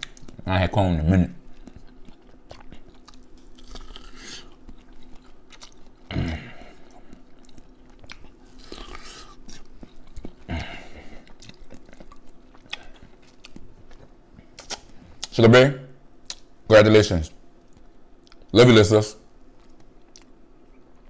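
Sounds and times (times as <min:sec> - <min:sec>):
chewing corn on the cob: 0:01.4 - 0:15.3.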